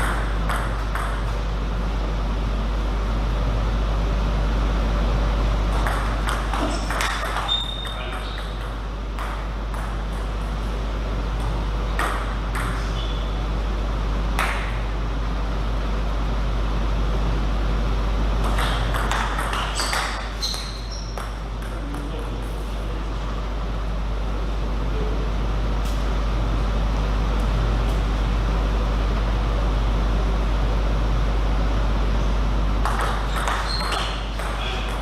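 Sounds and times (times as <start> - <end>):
table tennis ball clicks: 32.8 - 35.0.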